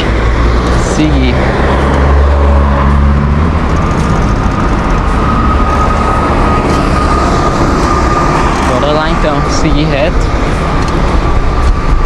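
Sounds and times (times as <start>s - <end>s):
car engine running: 0.0s - 12.0s
road and wind noise: 0.0s - 12.0s.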